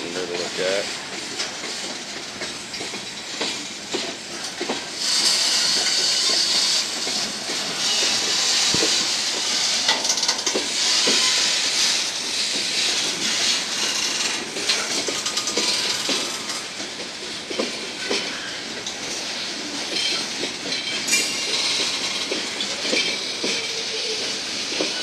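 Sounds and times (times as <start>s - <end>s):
freight cars rolling hiss: 0.0s - 25.0s
wheels and couplings clicking: 8.7s - 11.3s, 12.5s - 25.0s.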